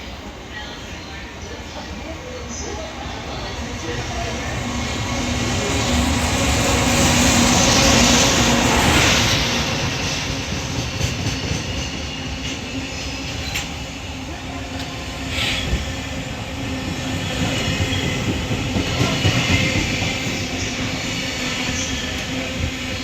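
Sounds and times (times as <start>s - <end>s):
freight train rumbling: 0.0s - 23.0s.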